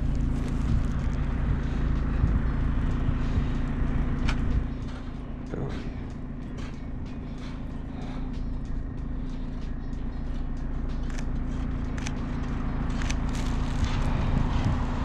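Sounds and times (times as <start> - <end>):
car engine drone: 0.0 - 15.0
tyre noise on road: 0.0 - 15.0
light ticks: 8.3 - 14.0.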